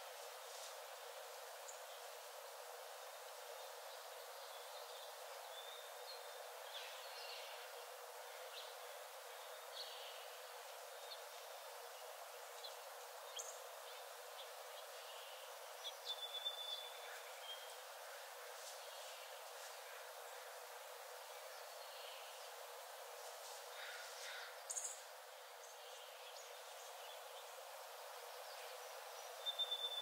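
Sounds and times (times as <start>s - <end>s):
faint ambient hiss: 0.0s - 30.0s
songbirds chirping and whistling: 15.9s - 17.7s, 29.3s - 30.0s.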